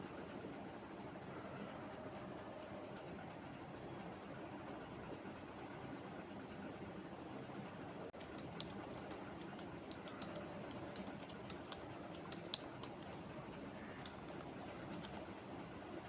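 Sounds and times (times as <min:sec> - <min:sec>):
steady background noise: 0:00.0 - 0:16.0
keyboard typing: 0:08.2 - 0:15.4.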